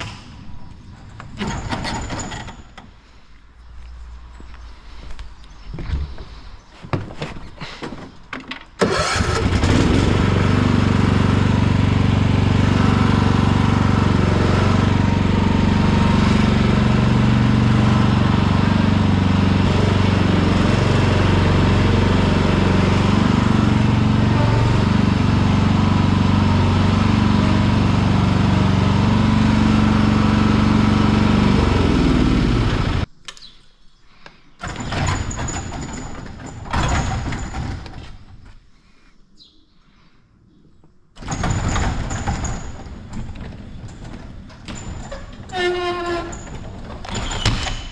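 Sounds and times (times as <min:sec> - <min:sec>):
lawn tractor engine running: 0:08.8 - 0:33.1, 0:34.6 - 0:38.1, 0:41.2 - 0:47.9.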